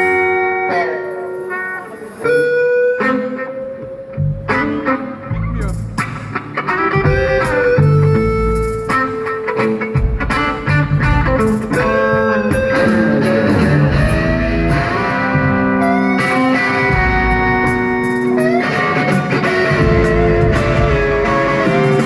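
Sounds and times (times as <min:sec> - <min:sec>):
electric guitar solo with string bends: 0:00.0 - 0:22.0
low bass notes: 0:04.0 - 0:06.2, 0:07.0 - 0:08.9, 0:10.7 - 0:18.3, 0:19.6 - 0:22.0.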